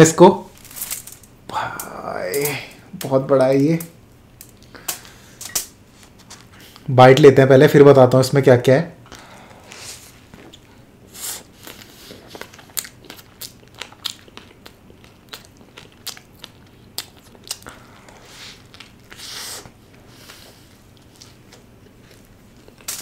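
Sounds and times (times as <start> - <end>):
biting and chewing burger: 10.2 - 23.0.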